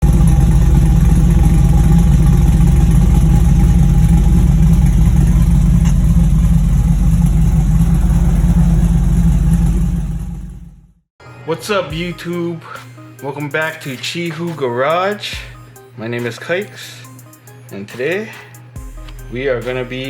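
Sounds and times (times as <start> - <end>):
pickup truck engine idling: 0.0 - 10.9.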